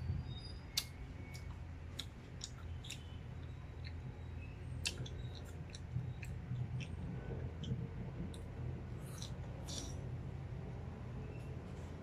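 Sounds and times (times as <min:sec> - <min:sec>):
wet mouth clicks and smacks: 0:00.7 - 0:04.0, 0:04.8 - 0:07.0, 0:07.6 - 0:10.0.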